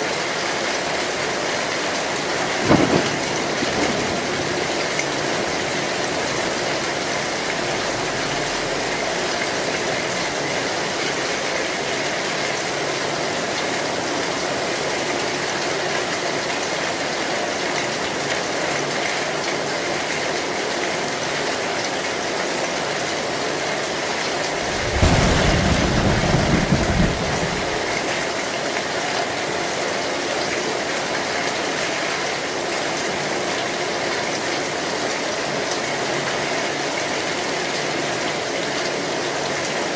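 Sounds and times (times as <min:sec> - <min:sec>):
heavy rain on a tin roof: 0:00.0 - 0:39.9
thunder rumble: 0:02.4 - 0:10.7, 0:24.4 - 0:28.2.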